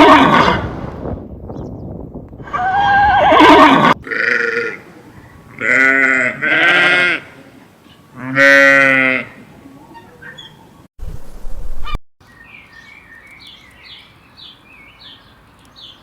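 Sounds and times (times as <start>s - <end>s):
horse whinnying: 2.4s - 4.6s
livestock bleating: 2.9s - 4.8s, 5.6s - 7.4s, 8.2s - 9.4s.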